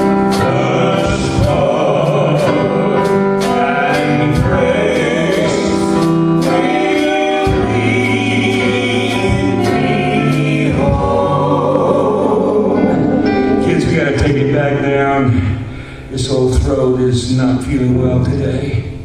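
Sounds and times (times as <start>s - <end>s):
instrumental accompaniment with beat: 0.0s - 14.7s
choir singing held notes: 0.0s - 16.2s.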